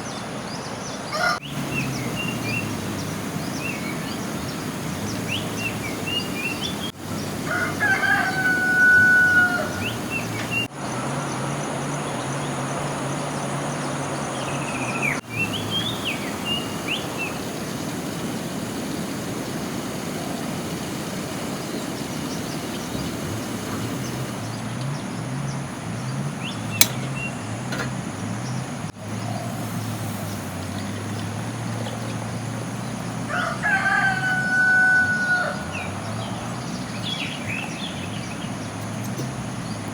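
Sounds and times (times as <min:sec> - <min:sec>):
rooster crowing: 0:01.1 - 0:10.7, 0:15.3 - 0:17.6, 0:33.3 - 0:36.4
background hiss: 0:01.2 - 0:10.7, 0:15.1 - 0:24.9, 0:28.9 - 0:38.3
sharp click: 0:26.8 - 0:27.1.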